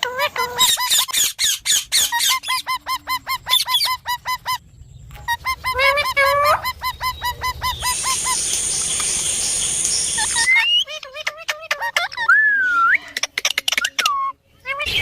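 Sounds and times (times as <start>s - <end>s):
parrot honking calls: 5.2s - 8.7s
hiss with high thin tone: 8.0s - 10.5s.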